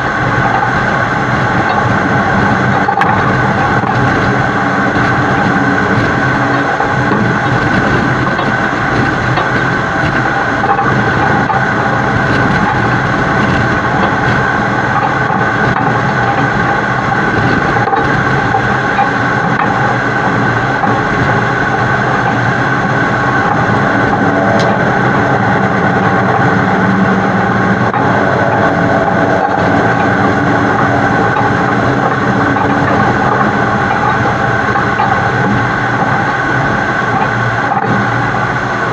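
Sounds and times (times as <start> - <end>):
truck driving at highway speed: 0.0 - 38.9.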